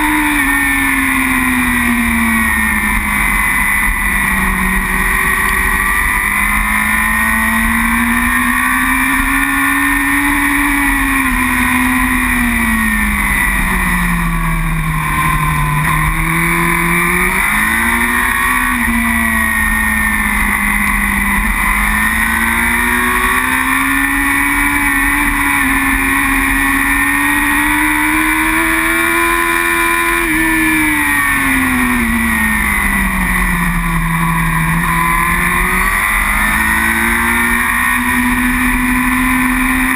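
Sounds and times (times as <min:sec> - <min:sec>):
steady rush of noise: 0:00.0 - 0:39.9
superbike engine at racing speed: 0:00.0 - 0:39.9.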